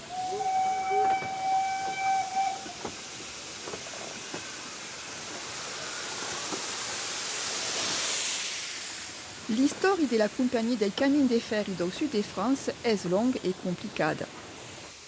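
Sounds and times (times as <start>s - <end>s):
steam locomotive whistle: 0.0s - 2.9s
steam hissing: 0.0s - 15.0s.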